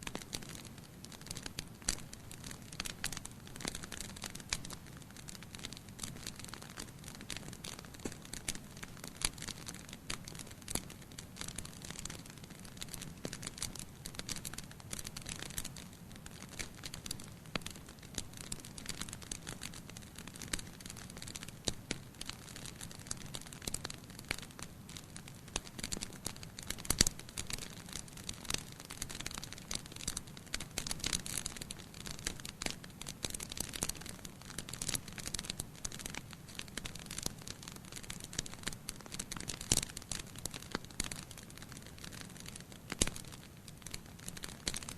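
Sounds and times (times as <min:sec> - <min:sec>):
bonfire crackling: 0:00.0 - 0:44.9.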